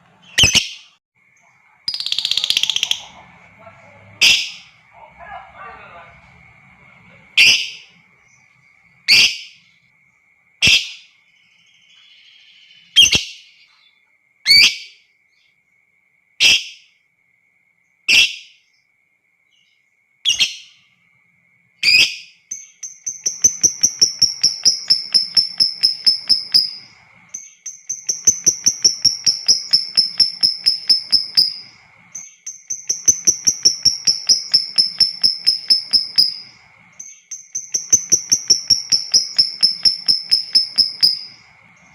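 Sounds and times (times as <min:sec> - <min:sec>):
lovebird chattering trills: 0:00.2 - 0:00.8, 0:01.9 - 0:05.3, 0:07.3 - 0:08.5, 0:09.1 - 0:09.6, 0:21.8 - 0:41.9.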